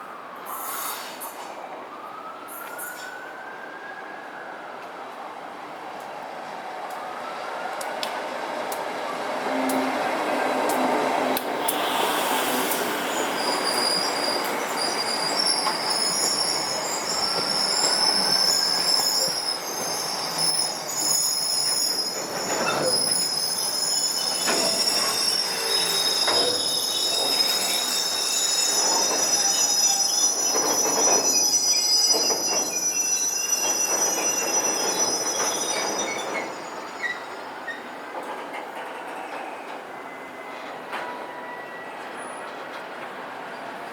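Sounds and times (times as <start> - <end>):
train wheels squealing: 0.5 - 1.5, 2.5 - 3.5, 11.5 - 43.9.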